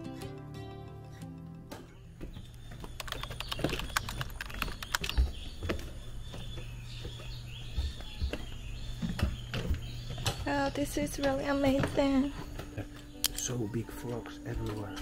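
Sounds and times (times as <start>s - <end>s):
birds chirping and singing: 0.0s - 15.0s
steady low hum: 2.0s - 14.7s
sharp clicks: 2.8s - 5.4s.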